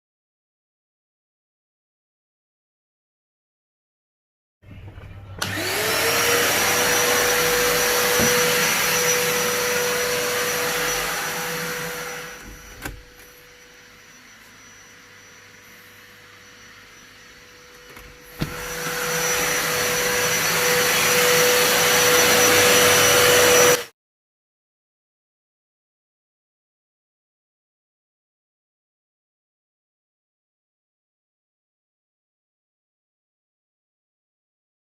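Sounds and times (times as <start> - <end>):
vacuum cleaner whining: 4.6 - 23.9
knock: 8.2 - 8.4.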